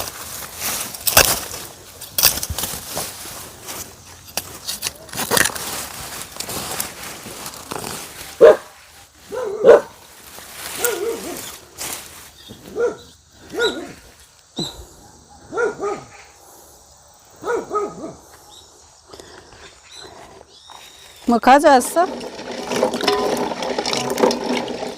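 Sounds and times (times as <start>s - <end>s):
dog barking: 8.4s - 8.7s, 9.3s - 10.0s, 12.7s - 14.0s, 15.0s - 16.4s, 17.4s - 18.2s.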